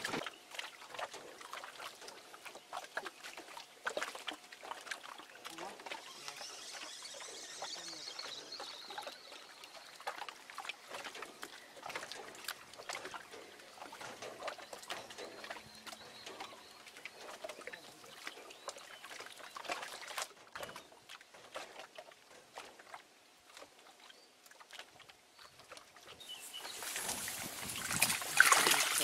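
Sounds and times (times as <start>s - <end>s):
faint high whine: 5.8s - 10.1s.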